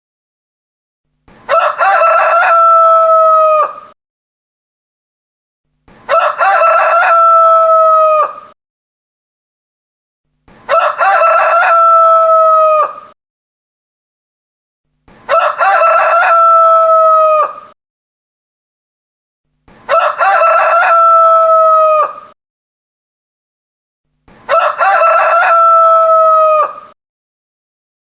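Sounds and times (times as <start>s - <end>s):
rooster crowing: 1.5s - 4.0s, 6.1s - 8.6s, 10.7s - 13.2s, 15.3s - 17.8s, 19.9s - 22.4s, 24.5s - 27.0s.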